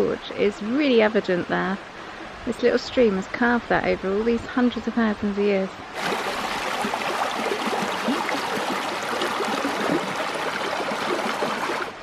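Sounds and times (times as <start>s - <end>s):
stream tumbling over rocks: 6.0s - 12.0s.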